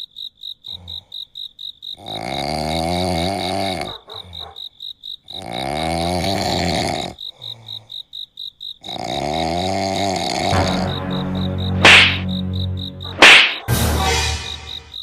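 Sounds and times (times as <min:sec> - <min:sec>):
cricket chirping: 0:00.0 - 0:15.0
person snoring loudly: 0:02.0 - 0:03.9, 0:05.4 - 0:07.2, 0:08.9 - 0:10.8.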